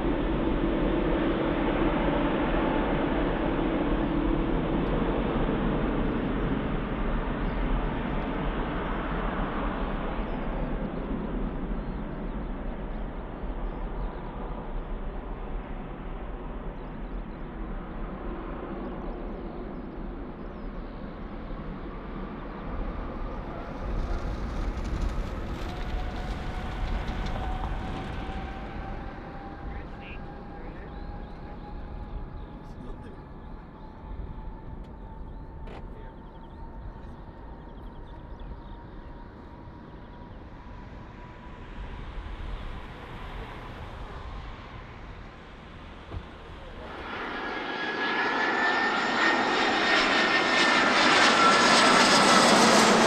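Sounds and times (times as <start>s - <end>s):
jet engine whine rising: 23.1s - 53.0s.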